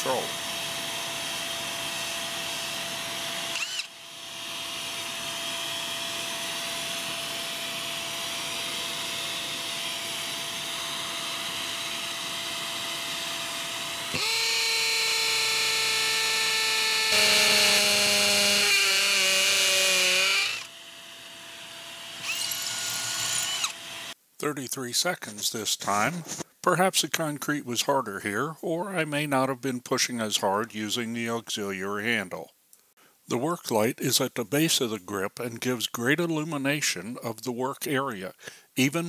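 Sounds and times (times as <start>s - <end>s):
hammer drill drilling into concrete: 0.0s - 24.2s.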